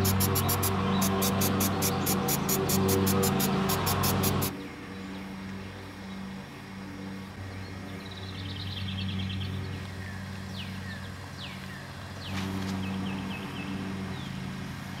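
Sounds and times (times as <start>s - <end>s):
steady low hum: 0.0s - 4.6s
birds calling: 0.0s - 5.3s.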